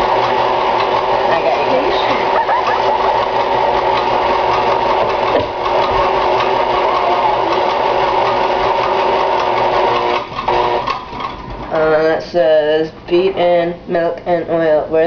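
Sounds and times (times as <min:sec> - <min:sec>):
stand mixer motor humming: 0:00.0 - 0:11.7.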